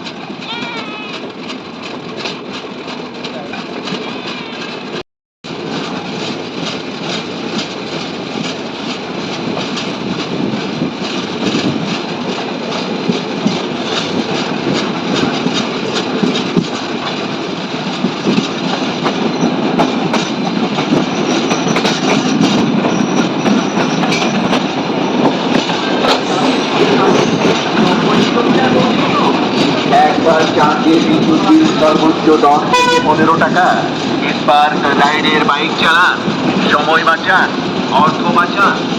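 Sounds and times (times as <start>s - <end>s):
train wheels clicking over rail joints: 0.0s - 38.9s
high wheel squeal: 22.8s - 25.3s, 26.2s - 28.0s.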